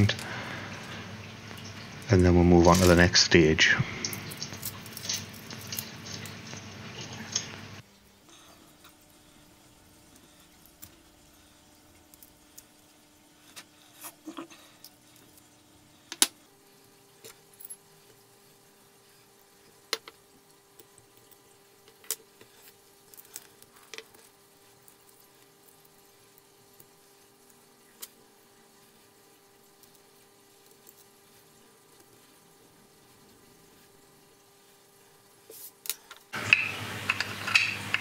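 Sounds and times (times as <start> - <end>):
small metal parts clicking: 35.8 - 38.0.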